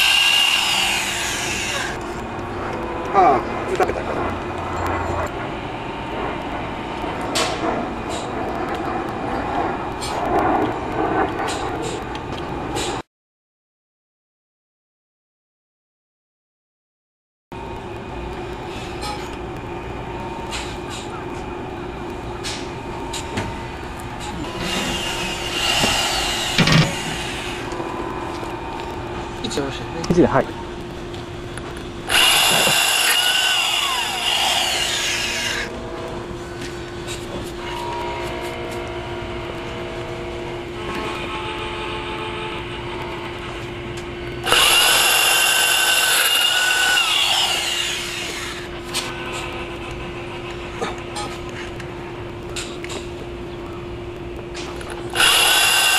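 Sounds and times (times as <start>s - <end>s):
power drill motor whine: 0.0s - 2.0s, 24.5s - 27.8s, 32.0s - 35.7s, 44.4s - 48.6s, 55.1s - 55.9s
drill bit grinding into tile: 32.1s - 35.6s, 44.4s - 48.3s, 55.1s - 55.9s.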